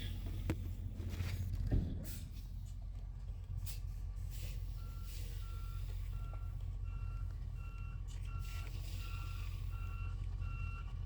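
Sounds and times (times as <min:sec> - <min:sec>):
idling diesel engine rumble: 0:00.0 - 0:11.0
truck back-up alarm beeping: 0:04.3 - 0:11.0.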